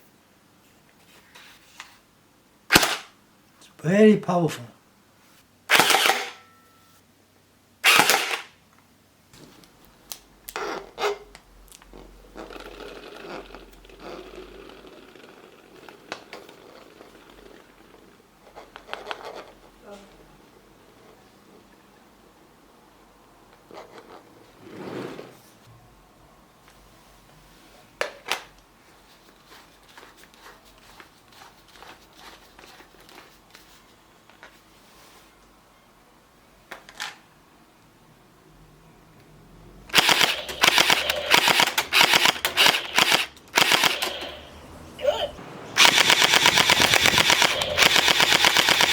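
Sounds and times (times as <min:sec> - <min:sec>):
gel blaster burst: 0:07.8 - 0:08.4, 0:39.9 - 0:48.9.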